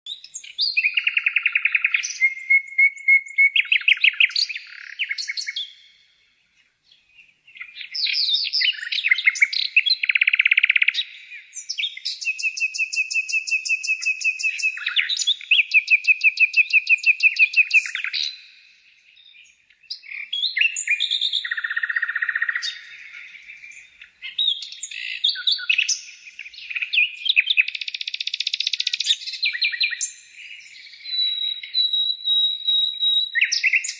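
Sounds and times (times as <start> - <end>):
songbird trilling and chirping: 0.1 - 6.0, 6.6 - 33.9.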